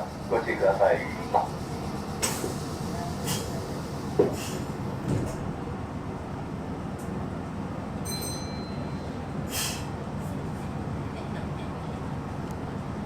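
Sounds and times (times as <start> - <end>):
train rumbling: 0.0 - 13.0
train doors shutting thump: 2.2 - 5.6.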